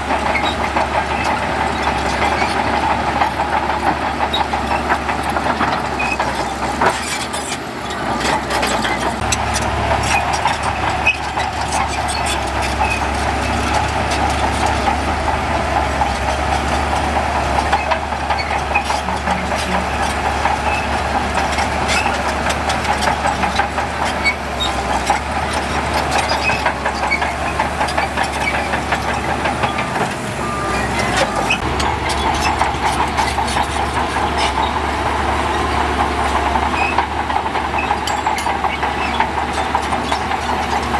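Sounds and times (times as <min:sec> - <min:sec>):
heavy machinery diesel engines: 0:00.0 - 0:40.9.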